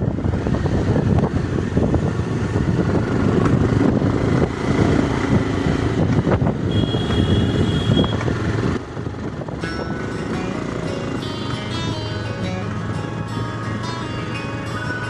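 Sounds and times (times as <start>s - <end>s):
wind buffeting microphone: 0.0s - 9.9s
vehicle running noise: 0.0s - 15.0s.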